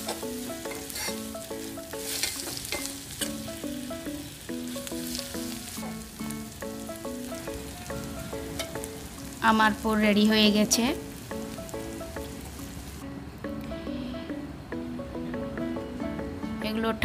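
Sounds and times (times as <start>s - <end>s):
metal spoon scraping a pan: 0.0s - 1.3s, 2.0s - 3.4s
filling sizzling in a pan: 0.0s - 13.0s
simple melody of held notes: 0.0s - 17.0s.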